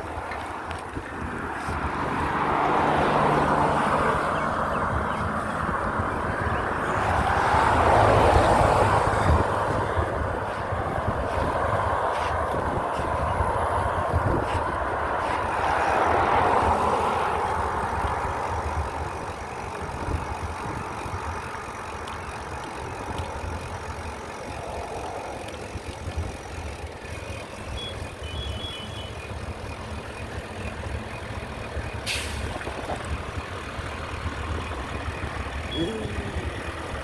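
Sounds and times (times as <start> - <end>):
motor vehicle passing by: 0.0 - 37.0
steady low rumble: 8.8 - 15.6.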